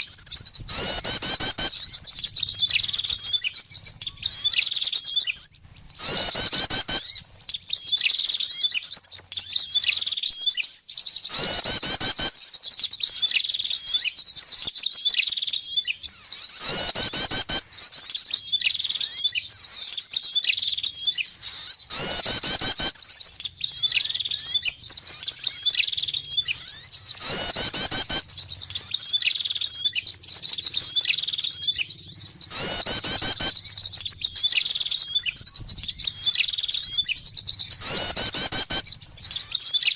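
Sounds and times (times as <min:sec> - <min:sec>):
rapid high bird chirping: 0:00.0 - 0:39.9
loud downward sweeping bird call: 0:23.8 - 0:39.9.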